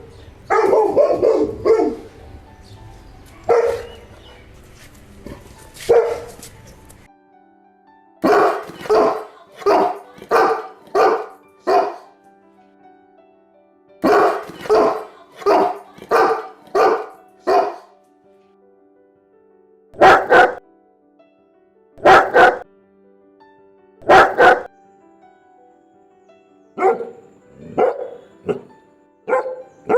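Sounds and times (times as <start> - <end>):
faint background music: 0.0 - 29.9
dog barking: 0.5 - 2.1, 3.4 - 4.2, 5.3 - 6.4, 8.2 - 12.1, 14.0 - 17.9, 20.0 - 20.6, 22.0 - 22.6, 24.0 - 24.7, 26.8 - 29.9.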